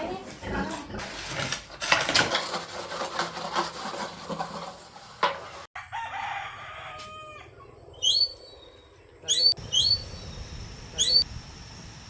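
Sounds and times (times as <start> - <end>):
rooster crowing: 5.8 - 7.7.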